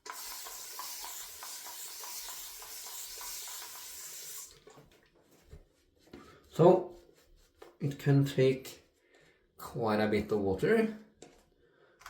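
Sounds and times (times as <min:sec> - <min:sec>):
water tap running: 0:00.0 - 0:04.8.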